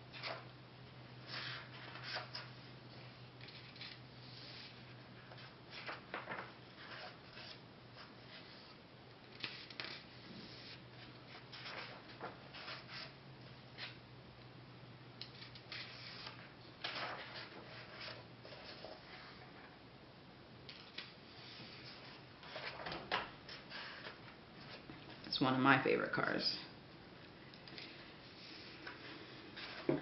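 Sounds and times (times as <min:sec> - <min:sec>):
book pages rustling: 0:04.6 - 0:08.6, 0:09.3 - 0:13.1, 0:15.4 - 0:19.5, 0:20.8 - 0:24.9, 0:27.8 - 0:30.0.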